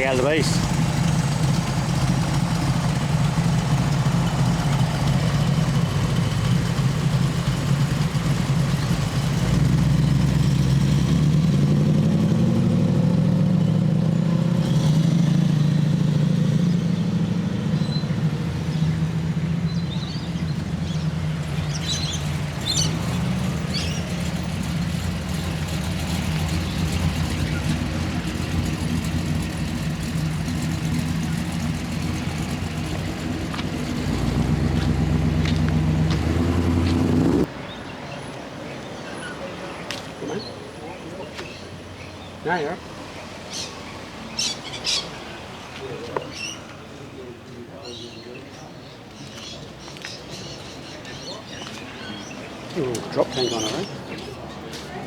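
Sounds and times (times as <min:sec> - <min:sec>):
car engine deep rumble: 0:00.0 - 0:37.5.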